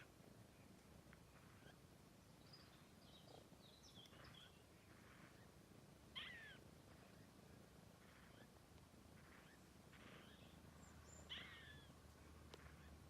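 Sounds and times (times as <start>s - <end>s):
animal chirps and squeaks: 6.2s - 6.6s, 9.3s - 11.9s.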